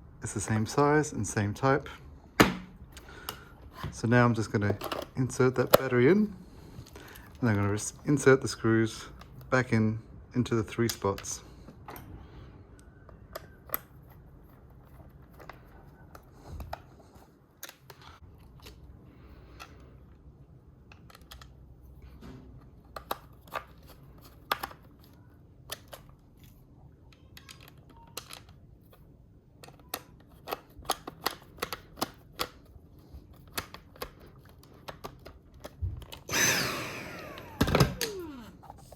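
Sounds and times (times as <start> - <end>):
screwdriver and plastic clicks: 22.9 - 28.6, 29.6 - 36.3
vacuum motor whine burst: 36.3 - 38.6.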